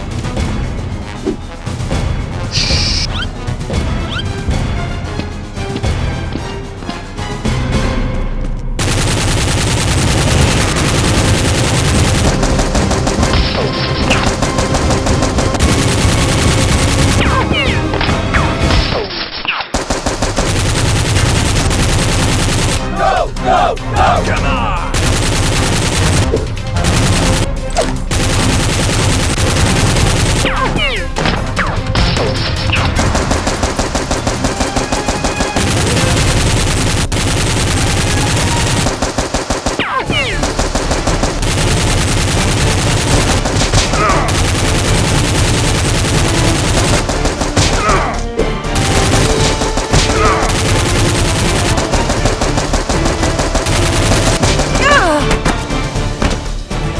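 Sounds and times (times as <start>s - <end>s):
machine-gun fire: 8.8s - 19.0s, 19.7s - 55.5s.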